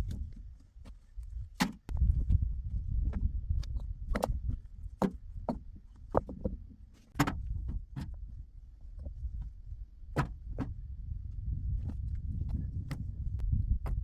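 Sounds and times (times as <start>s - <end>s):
low steady rumble: 7.3s - 14.0s.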